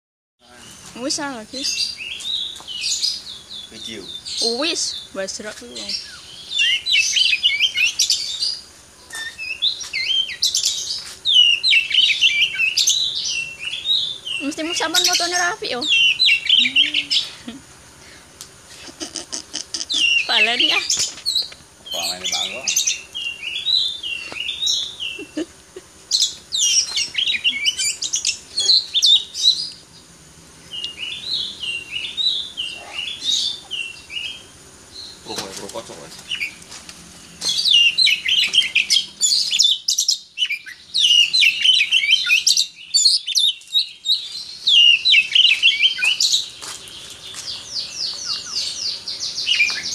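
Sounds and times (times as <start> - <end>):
bird singing whistled song: 1.6 - 17.3, 26.1 - 29.8, 37.5 - 46.4, 47.7 - 49.9.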